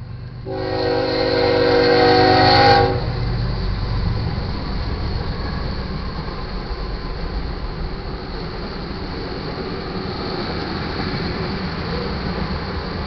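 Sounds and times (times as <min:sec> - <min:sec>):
locomotive engine and wheels rumbling: 0:00.0 - 0:13.0
locomotive air horn chord: 0:00.4 - 0:03.1.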